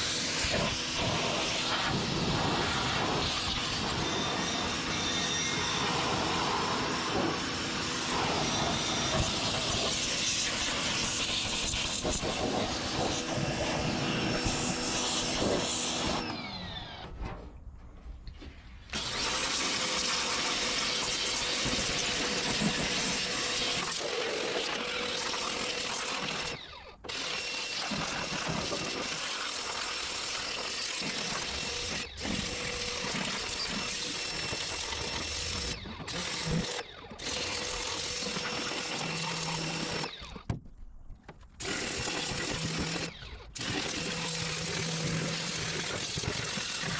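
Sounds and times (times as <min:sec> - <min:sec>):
pressure washer spraying water: 0:00.0 - 0:16.2
pressure washer motor running: 0:00.0 - 0:16.3.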